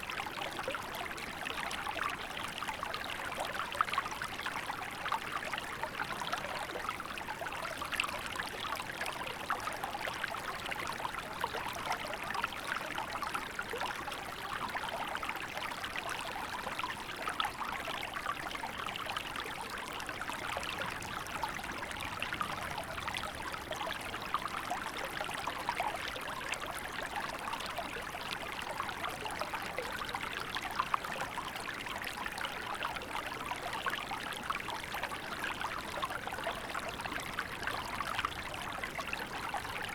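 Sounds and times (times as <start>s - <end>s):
small river babbling: 0.0s - 39.9s.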